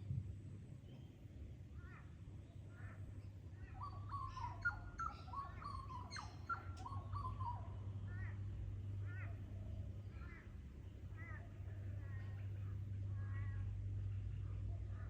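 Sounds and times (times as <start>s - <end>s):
birds chirping and whistling: 3.8s - 7.6s
steady low hum: 7.6s - 15.0s.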